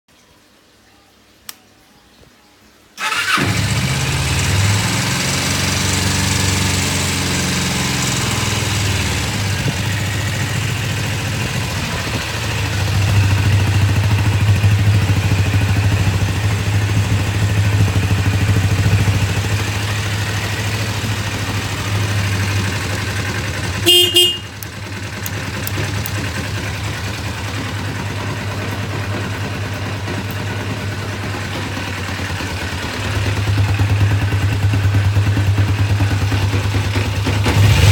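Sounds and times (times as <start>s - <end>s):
motorcycle engine idling: 3.0s - 37.9s
horn beep: 23.8s - 24.7s.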